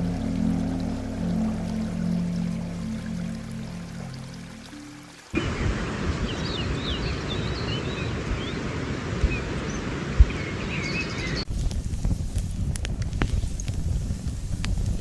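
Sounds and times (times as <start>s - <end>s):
music: 0.0s - 5.4s
wind rumbling on microphone: 0.0s - 15.0s.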